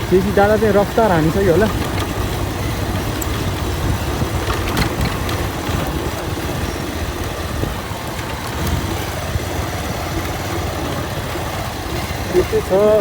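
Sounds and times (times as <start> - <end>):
motorcycle engine rumbling: 0.0 - 13.0
knocks from riding: 1.6 - 6.8.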